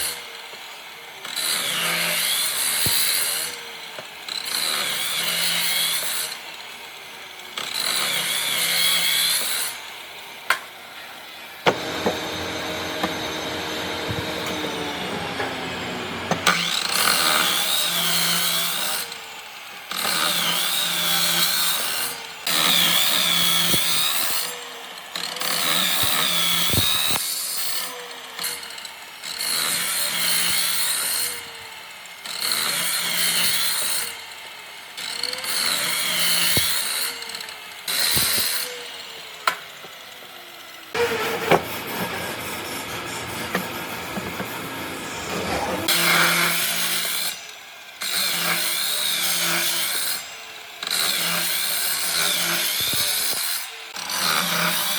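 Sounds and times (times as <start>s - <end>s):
power tool whining on wood: 0.0s - 54.9s
steady running machine sound: 11.0s - 16.6s, 38.9s - 46.0s.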